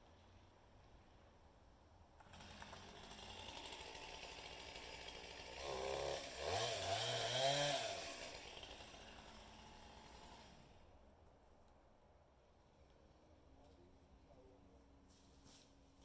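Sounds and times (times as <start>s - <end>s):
chainsaw revving: 2.2s - 10.8s.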